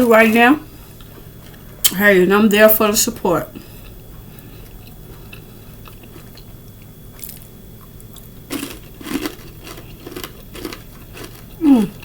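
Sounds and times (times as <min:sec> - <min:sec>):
chewing crispy fried chicken: 0:04.5 - 0:12.0.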